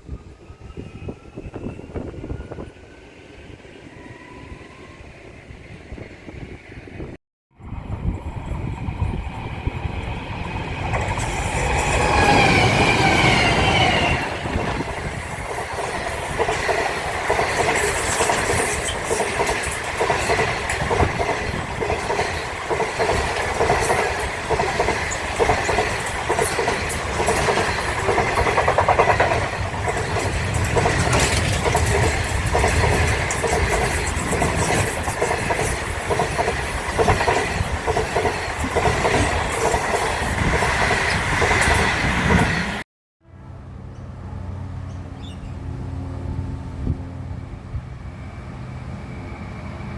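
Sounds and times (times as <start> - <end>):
train wheels clattering: 15.5 - 42.6.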